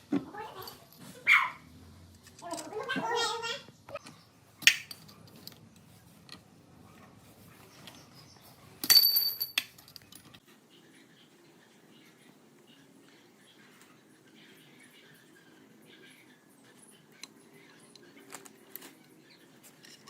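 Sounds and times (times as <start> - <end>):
metal parts clinking: 4.6 - 5.8, 8.8 - 10.4
metal clink with high ring: 8.9 - 9.8.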